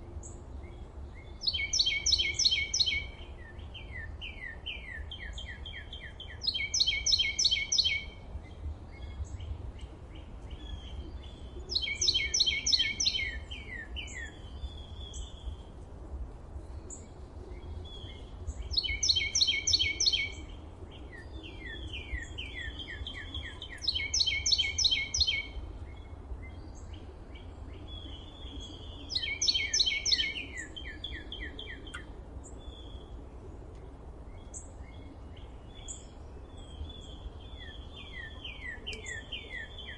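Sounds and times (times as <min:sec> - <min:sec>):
bird song of rapid repeated notes: 0:00.0 - 0:39.9
soft bird chirps: 0:34.4 - 0:39.9.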